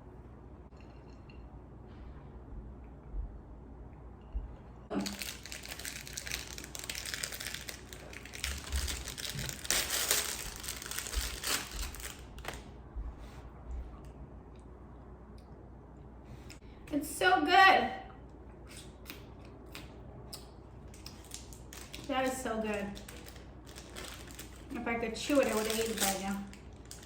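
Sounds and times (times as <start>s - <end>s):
plastic wrapper crinkling: 4.9s - 12.7s, 20.9s - 27.0s.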